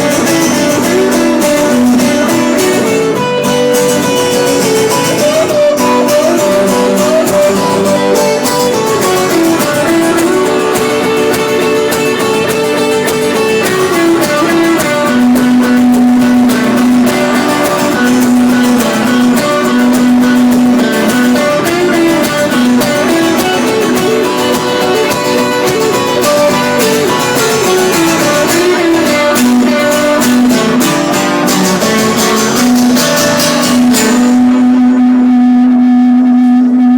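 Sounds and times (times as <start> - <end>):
guitar melody line: 0.0 - 36.9
guitars strummed: 0.0 - 36.9
long held low note: 34.4 - 36.9.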